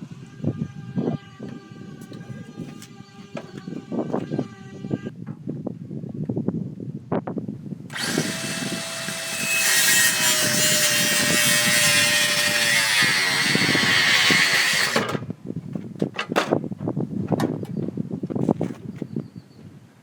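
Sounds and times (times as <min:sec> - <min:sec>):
power saw cutting wood: 0:07.9 - 0:15.2.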